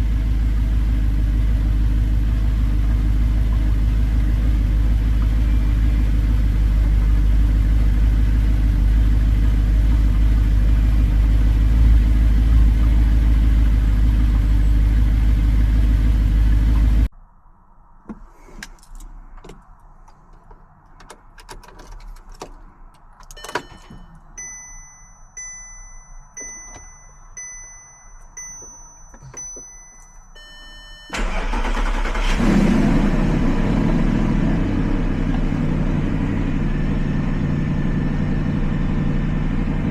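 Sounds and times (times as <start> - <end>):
car engine running and revving: 0.0 - 17.1, 31.1 - 39.9.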